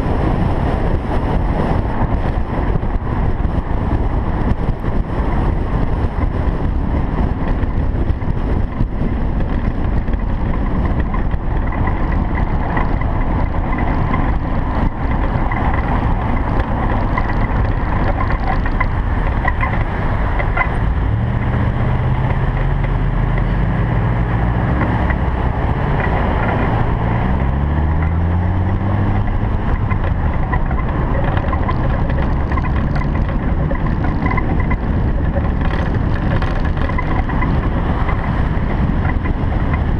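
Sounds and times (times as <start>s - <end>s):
car engine revving: 11.8s - 39.9s.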